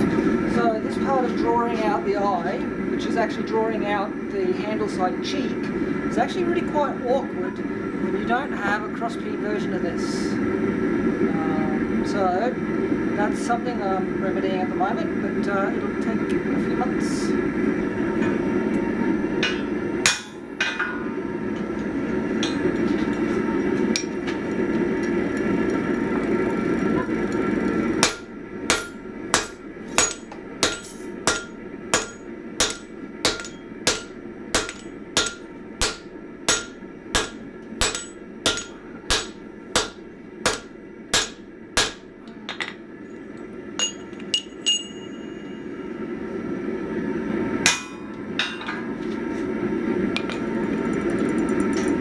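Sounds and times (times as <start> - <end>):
hammer striking steel on anvil: 19.4 - 21.0, 28.0 - 42.2, 43.8 - 45.5, 47.7 - 48.7.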